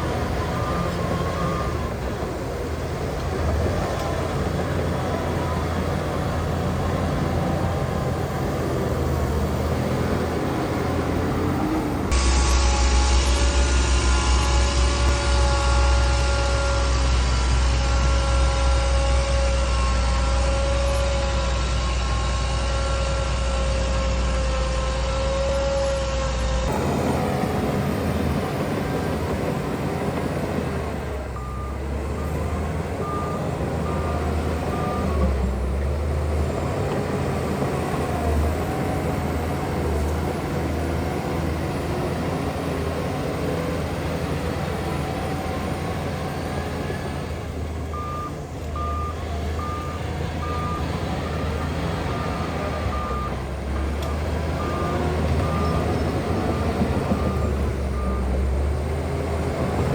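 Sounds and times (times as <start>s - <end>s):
heavy diesel machinery running: 0.0s - 59.9s
reversing alarm beeping: 0.2s - 2.0s, 26.7s - 35.8s, 47.9s - 53.5s, 54.1s - 58.5s.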